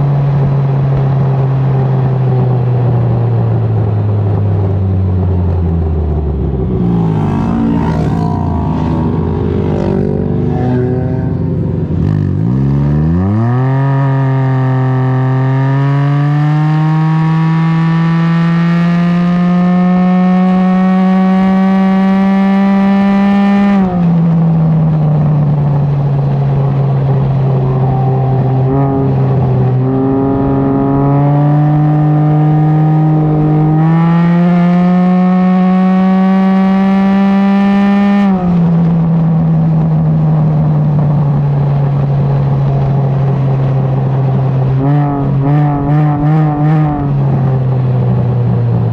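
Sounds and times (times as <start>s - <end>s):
other engines: 0.0s - 48.9s
motorcycle engine pulling away: 5.2s - 24.4s.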